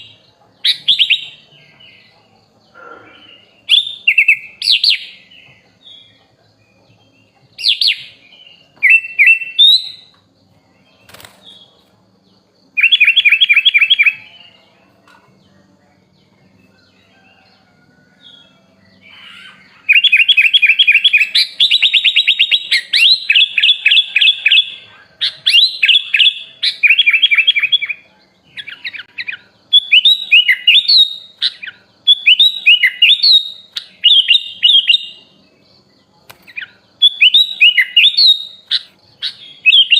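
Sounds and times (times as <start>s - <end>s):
bird singing whistled phrases: 28.6s - 35.3s, 36.6s - 39.9s.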